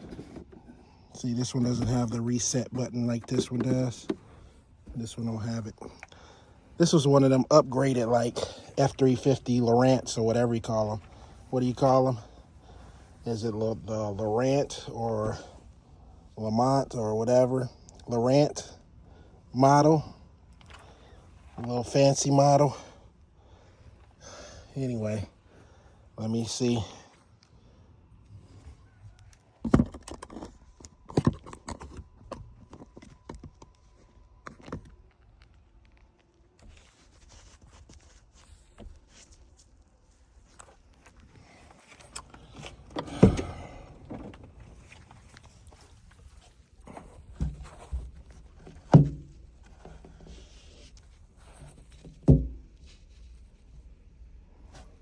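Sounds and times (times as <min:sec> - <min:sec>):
plastic dash parts clicking: 0:29.2 - 0:36.4.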